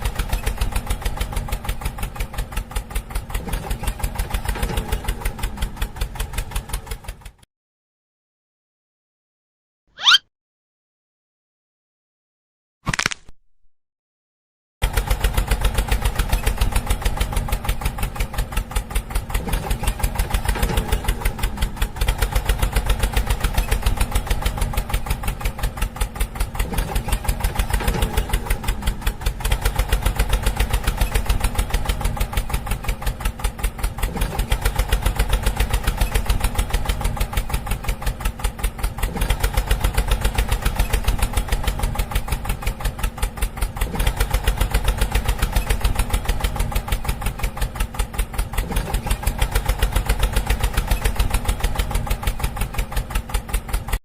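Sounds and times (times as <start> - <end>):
small engine idling: 0.0 - 7.4, 14.8 - 54.0
brief wavering tones: 10.0 - 10.2.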